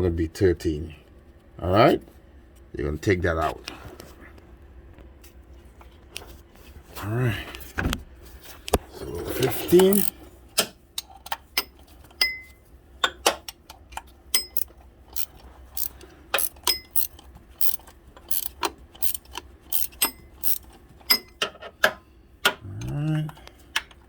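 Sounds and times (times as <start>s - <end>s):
ratchet wrench clicking: 9.6s - 10.1s, 14.3s - 21.3s.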